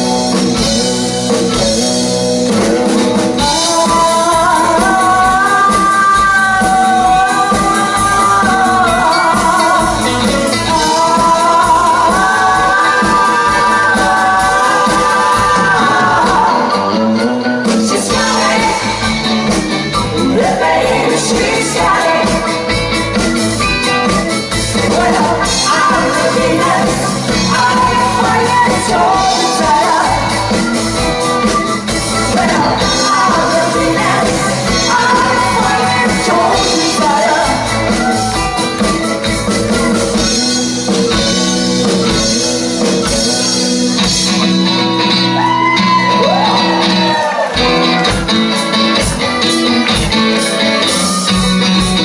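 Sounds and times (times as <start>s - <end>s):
rock band playing: 0.0s - 52.0s
lead singer vocals: 3.2s - 23.0s, 24.7s - 30.8s, 32.1s - 38.9s.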